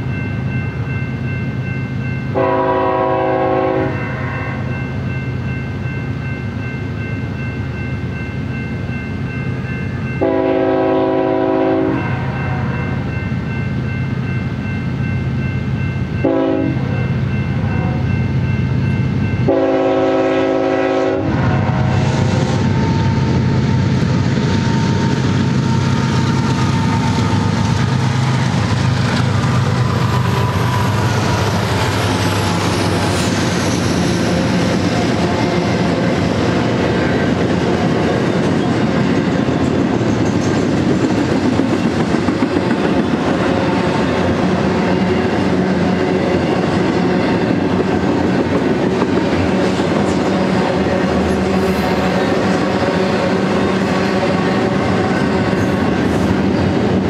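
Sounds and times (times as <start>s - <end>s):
crossing bell ringing: 0.0s - 57.0s
locomotive horn blasts: 2.4s - 4.7s, 10.2s - 13.0s, 16.2s - 18.1s, 19.4s - 21.8s
locomotive engines rumbling: 5.6s - 57.0s
train wheels clattering on rail: 22.2s - 57.0s.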